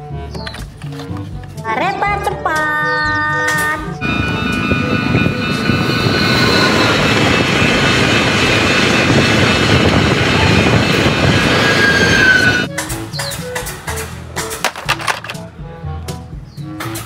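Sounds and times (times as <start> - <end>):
train wheels rumbling on rails: 3.4 - 15.4.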